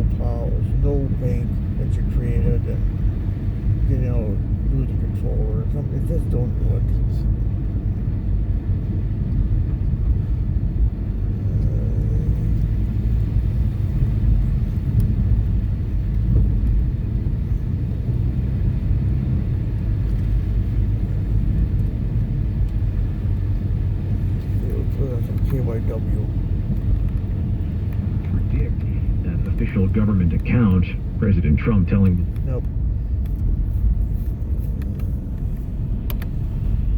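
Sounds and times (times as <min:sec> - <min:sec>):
car engine inside cabin: 0:00.0 - 0:36.9.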